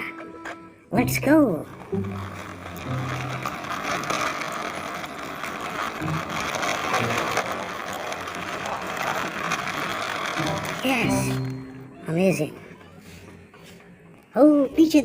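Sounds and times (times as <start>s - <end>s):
toy vehicle rattling: 1.0s - 12.9s.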